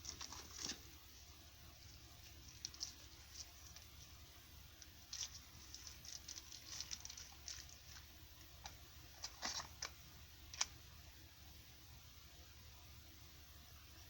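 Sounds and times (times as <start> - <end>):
hands handling smartphone packaging: 4.8 - 10.7.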